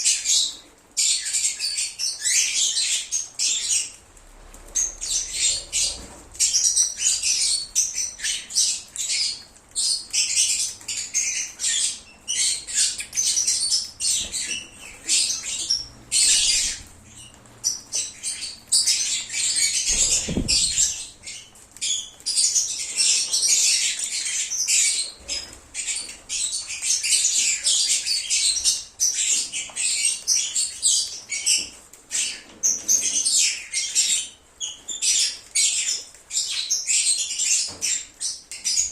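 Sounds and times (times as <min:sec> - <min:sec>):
lovebirds chirping and squawking: 0:00.0 - 0:38.9
low thud: 0:19.9 - 0:21.1.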